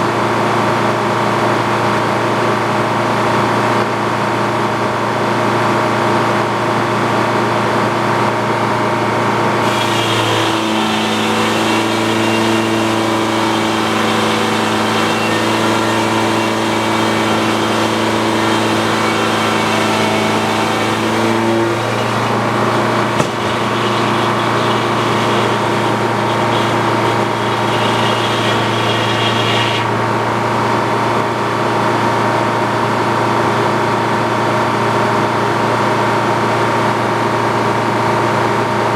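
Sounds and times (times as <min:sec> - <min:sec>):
sawmill engine running: 0:06.2 - 0:34.4.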